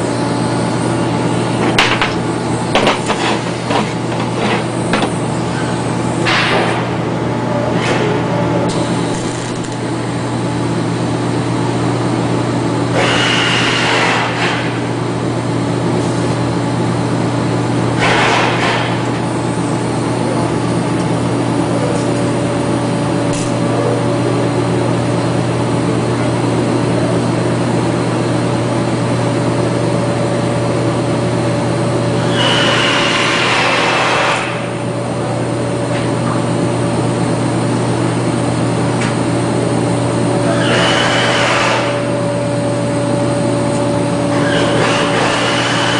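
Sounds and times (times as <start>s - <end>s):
welding machine buzzing: 0.0s - 7.1s, 8.7s - 11.9s, 29.5s - 35.0s, 36.6s - 45.9s.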